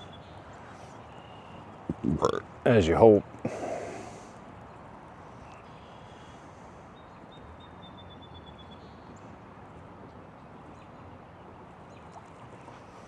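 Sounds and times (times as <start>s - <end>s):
faint steady hiss: 0.0s - 7.0s.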